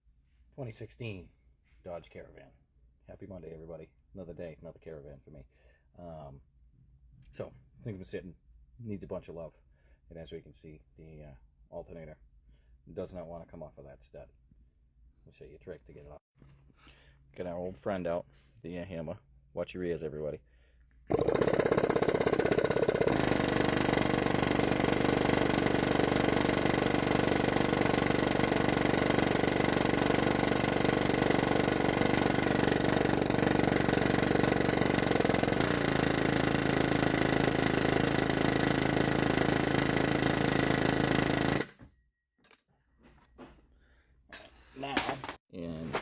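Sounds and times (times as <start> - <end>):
pneumatic air hammer hammering: 21.1 - 41.8.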